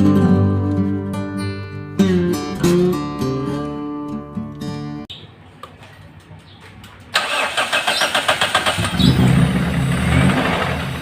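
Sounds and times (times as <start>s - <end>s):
engine cranking and starting: 7.1s - 11.0s.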